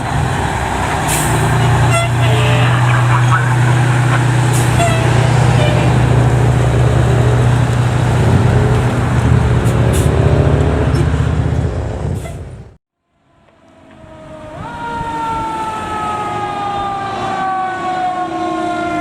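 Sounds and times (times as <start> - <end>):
fire truck engine running: 0.0 - 12.8.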